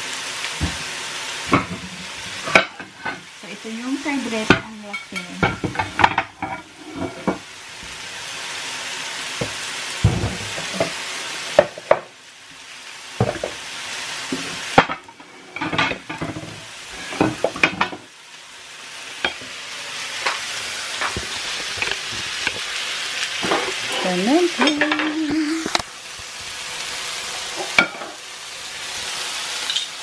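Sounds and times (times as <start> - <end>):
steaks sizzling on grill: 0.0 - 30.0
plates and utensils clicking: 29.6 - 30.0.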